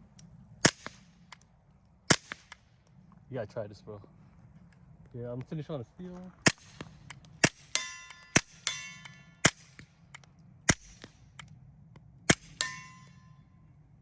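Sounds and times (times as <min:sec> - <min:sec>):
suppressed pistol shots: 0:00.6 - 0:01.4, 0:02.1 - 0:02.8, 0:06.4 - 0:11.5, 0:12.3 - 0:13.2
steel target ringing: 0:06.5 - 0:10.0, 0:12.3 - 0:13.8.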